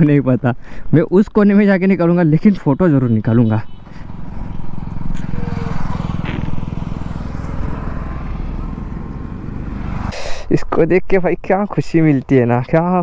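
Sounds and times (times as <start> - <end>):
motorcycle engine running at low revs: 3.6 - 10.1.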